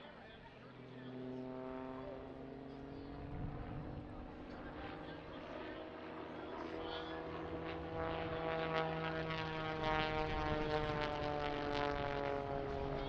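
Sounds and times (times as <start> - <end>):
propeller aircraft engine droning: 0.0 - 13.0.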